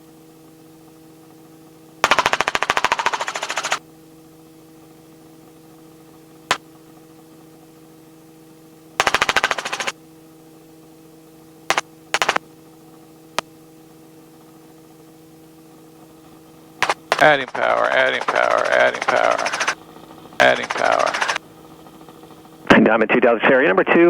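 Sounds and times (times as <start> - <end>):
helicopter cabin drone: 0.0 - 24.0
rapid buzzing clicks: 2.0 - 3.8, 9.0 - 9.9, 11.7 - 12.4, 16.8 - 22.6
sharp clicks: 2.0 - 3.8, 9.0 - 9.9, 11.7 - 12.4, 16.8 - 19.8, 20.4 - 21.4.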